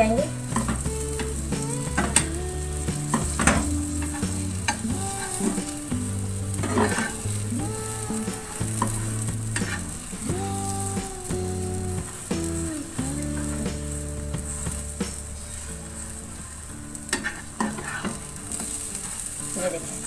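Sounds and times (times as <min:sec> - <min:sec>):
soft background music: 0:00.0 - 0:20.0
omelette sizzling in a frying pan: 0:00.3 - 0:20.0.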